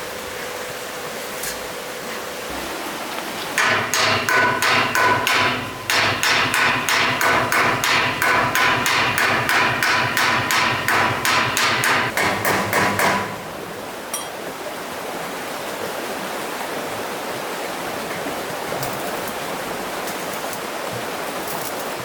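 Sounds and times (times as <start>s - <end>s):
flowing water: 0.0s - 22.0s
hammer striking metal: 3.6s - 14.5s.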